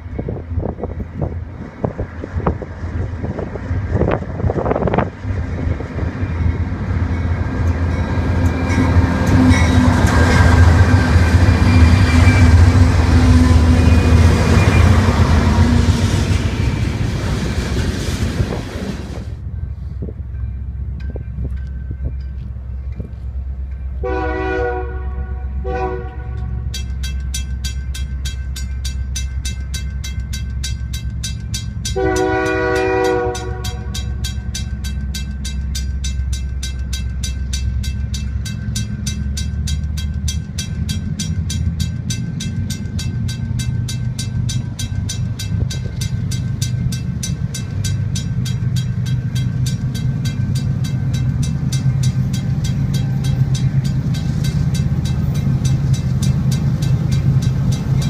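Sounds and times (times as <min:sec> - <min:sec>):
train air horn: 0:24.0 - 0:26.7, 0:32.0 - 0:34.0.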